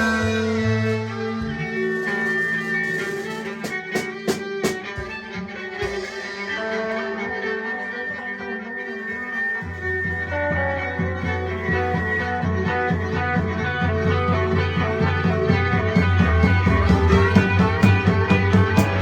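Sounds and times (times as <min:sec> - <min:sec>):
low bass part: 0:00.0 - 0:02.1, 0:13.4 - 0:19.0
band sustained tones: 0:00.0 - 0:03.6.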